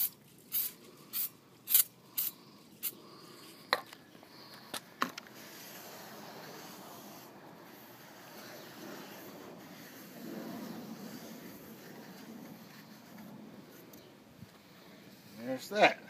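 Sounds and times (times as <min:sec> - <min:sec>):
aerosol spray bursts: 0:00.0 - 0:03.0.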